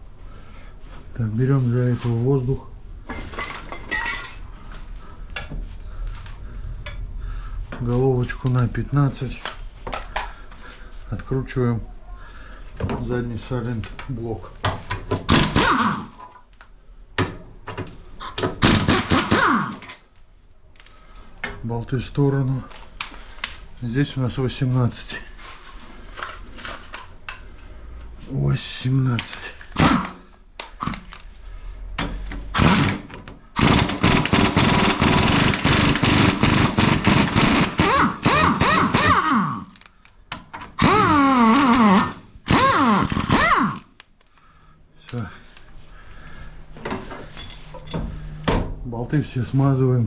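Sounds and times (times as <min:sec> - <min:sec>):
pneumatic impact wrench hammering: 0:15.2 - 0:16.4, 0:18.2 - 0:20.0, 0:29.8 - 0:31.1, 0:32.4 - 0:39.8, 0:40.8 - 0:44.0.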